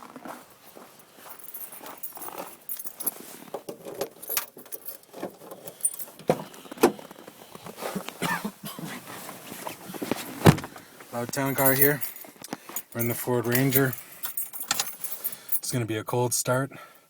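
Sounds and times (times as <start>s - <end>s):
keys jangling: 1.0s - 7.4s, 11.3s - 15.7s.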